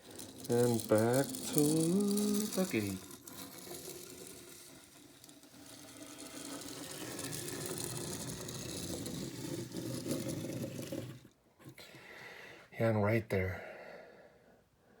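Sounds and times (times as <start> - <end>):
plastic wheels rolling on table: 0.0 - 11.4.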